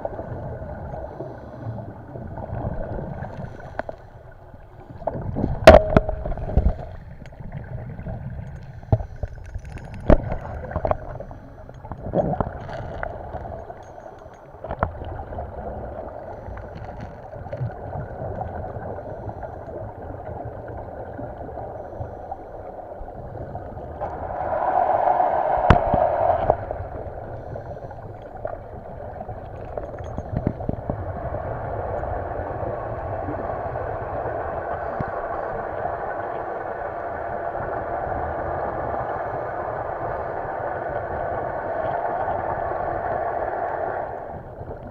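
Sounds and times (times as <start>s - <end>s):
muffled water gurgling: 0.0s - 44.9s
water bubbling: 4.3s - 8.6s, 23.2s - 36.8s.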